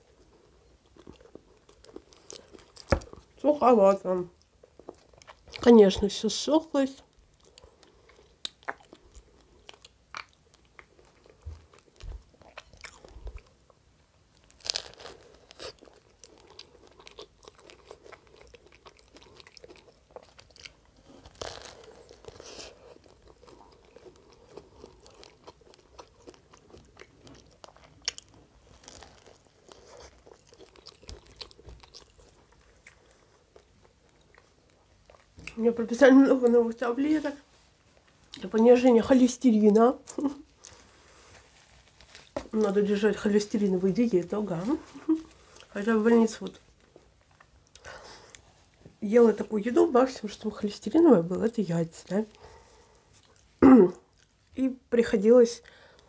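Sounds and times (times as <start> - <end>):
biting crisp bun: 14.3 - 35.6.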